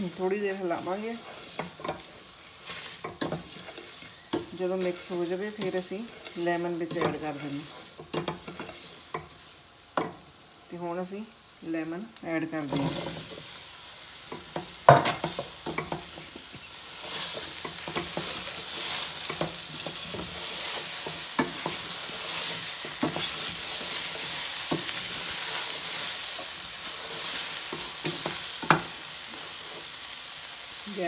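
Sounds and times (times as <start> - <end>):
food sizzling in oil: 0.0 - 31.0.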